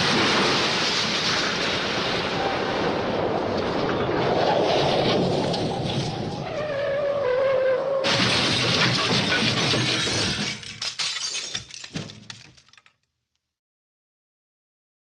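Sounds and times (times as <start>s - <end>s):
rumbling noise with sliding tone: 0.0s - 9.8s
glass shattering: 8.1s - 13.0s.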